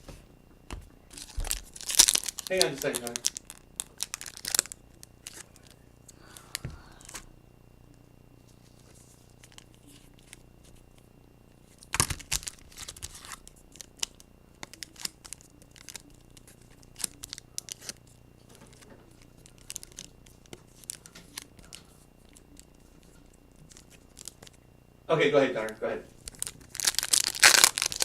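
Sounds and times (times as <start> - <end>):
card pack wrappers tearing: 1.1 - 7.2, 11.8 - 24.6, 26.2 - 28.0.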